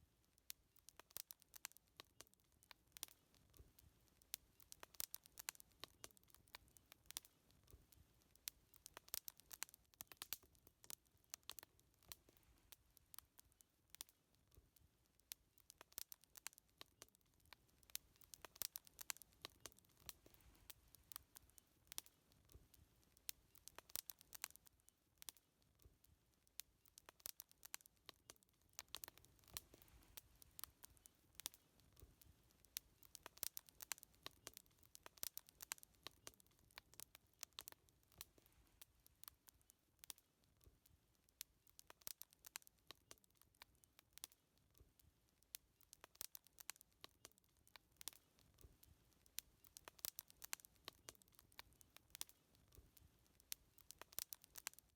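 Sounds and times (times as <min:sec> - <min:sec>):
wood fire crackling: 0:00.0 - 0:54.9
low rumble of burning: 0:27.0 - 0:39.3.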